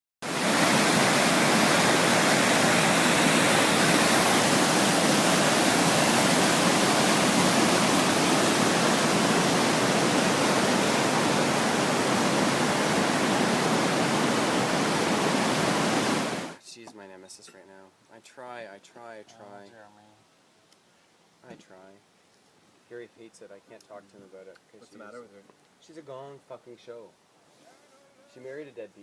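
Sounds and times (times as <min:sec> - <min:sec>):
rushing river water: 0:00.2 - 0:16.6.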